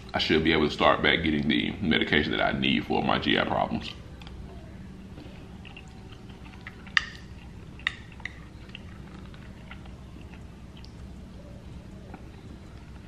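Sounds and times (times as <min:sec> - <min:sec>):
chewing and wet mouth sounds: 0:03.8 - 0:13.0.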